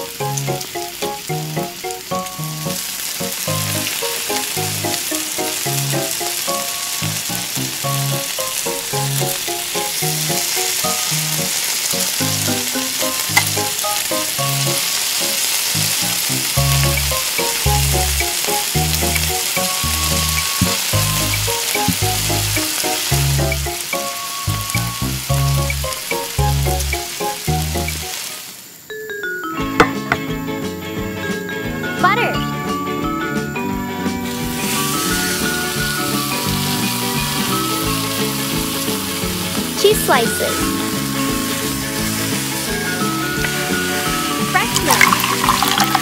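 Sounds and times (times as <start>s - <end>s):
food sizzling in hot oil: 0.0s - 28.9s, 32.5s - 46.0s
light background music: 0.0s - 46.0s.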